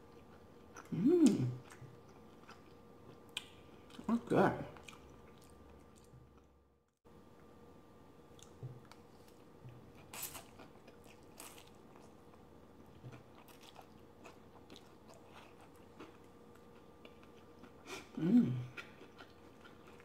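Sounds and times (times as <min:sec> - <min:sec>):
person chewing noodles: 0:00.0 - 0:04.1, 0:04.8 - 0:06.5, 0:08.3 - 0:20.0
faint steady hum: 0:00.0 - 0:20.0.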